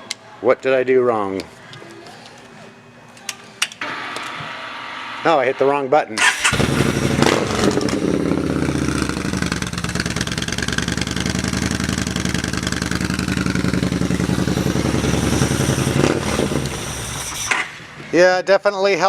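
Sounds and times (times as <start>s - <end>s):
motorcycle engine idling: 6.5s - 17.2s.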